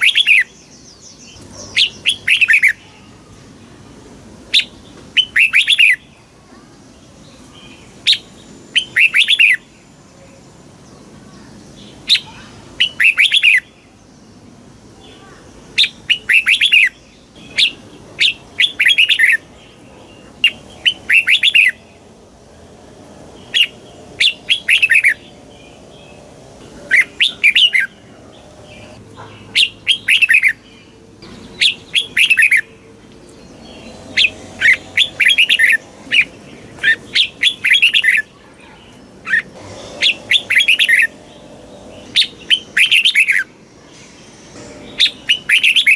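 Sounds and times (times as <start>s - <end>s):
bulbul singing: 15.2s - 45.9s.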